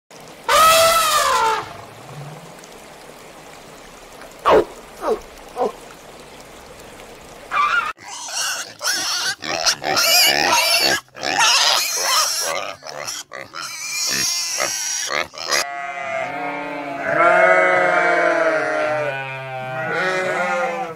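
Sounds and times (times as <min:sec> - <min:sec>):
animal calls: 0:04.4 - 0:05.8, 0:07.5 - 0:09.4.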